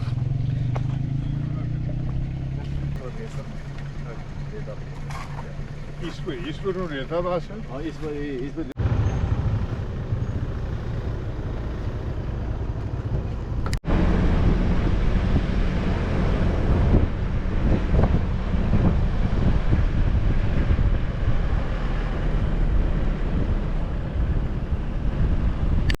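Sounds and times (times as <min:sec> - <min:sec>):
heavy diesel engine rumbling: 0:00.0 - 0:25.9
wind buffeting microphone: 0:09.5 - 0:26.0.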